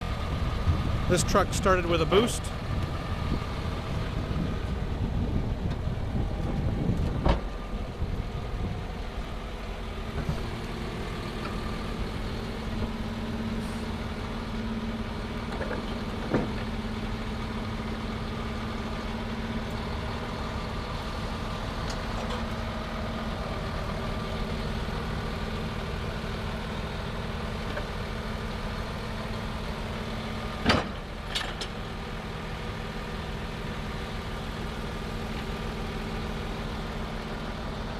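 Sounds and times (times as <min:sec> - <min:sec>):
diesel truck engine idling: 0:00.0 - 0:37.9.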